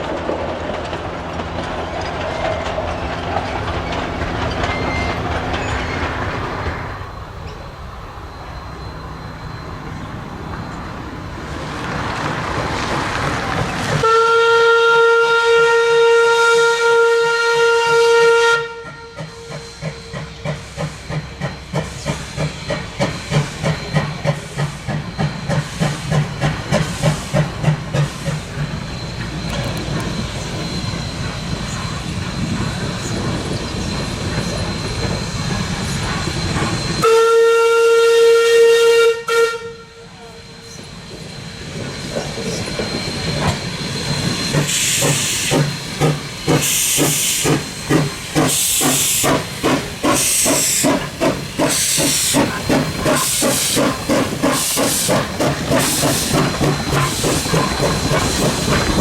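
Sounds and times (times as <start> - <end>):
carriages rolling: 0.0 - 6.9
steam locomotive chuffing: 0.0 - 59.0
steam locomotive chime whistle: 4.6 - 11.0, 14.0 - 55.2
steam hiss: 18.9 - 37.2, 40.0 - 59.0.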